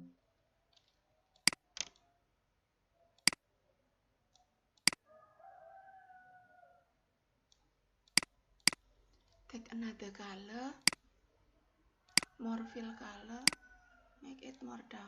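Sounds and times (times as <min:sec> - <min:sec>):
computer mouse clicking: 0:00.8 - 0:02.0, 0:07.5 - 0:08.8, 0:12.1 - 0:12.3.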